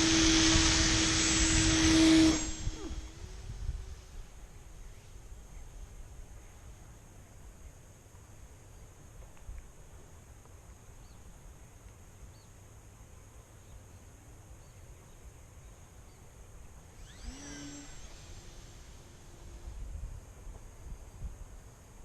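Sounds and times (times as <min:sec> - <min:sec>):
short rising whine: 0:00.0 - 0:05.7, 0:16.8 - 0:22.0
wind rumbling on microphone: 0:00.0 - 0:06.3, 0:17.0 - 0:21.7.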